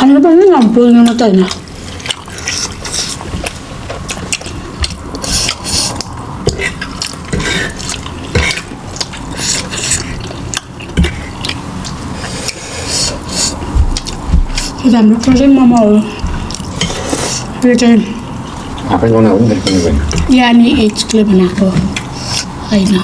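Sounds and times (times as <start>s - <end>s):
person chewing: 1.4s - 15.0s, 15.7s - 17.6s, 21.9s - 22.6s.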